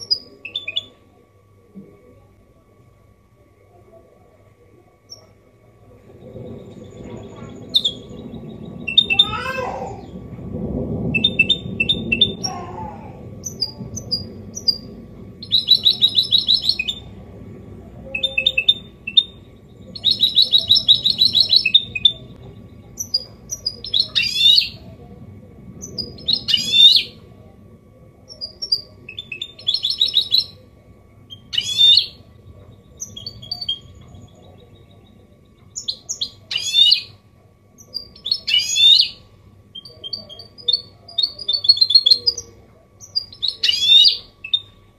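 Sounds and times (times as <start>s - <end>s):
finch singing trills: 13.4s - 17.1s, 18.1s - 22.3s, 22.9s - 24.8s.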